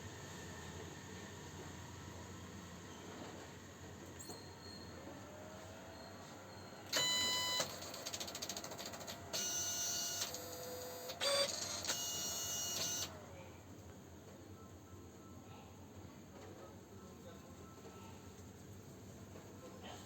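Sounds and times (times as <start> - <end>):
printer motors whining: 5.0 - 13.3.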